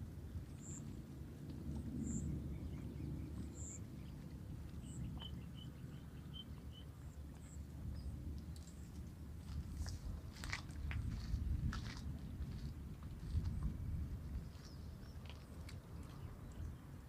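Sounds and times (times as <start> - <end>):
low steady background rumble: 0.0 - 17.0
small birds chirping: 0.5 - 1.0, 1.9 - 8.9.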